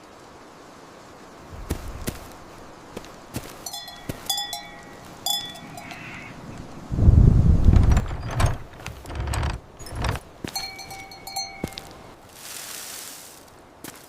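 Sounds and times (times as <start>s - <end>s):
rain hiss: 0.0s - 14.0s
small metal bell clanking: 3.7s - 6.1s, 10.6s - 11.9s.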